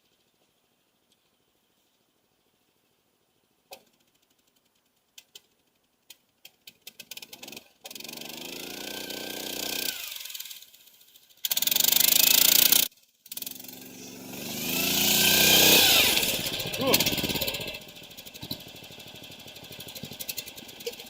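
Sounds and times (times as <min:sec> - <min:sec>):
small engine popping and running: 0:03.5 - 0:21.0.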